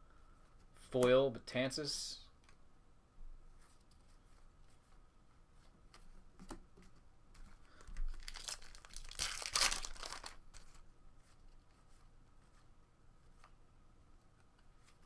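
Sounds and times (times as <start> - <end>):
foil wrapper tearing and crinkling: 8.1 - 10.7.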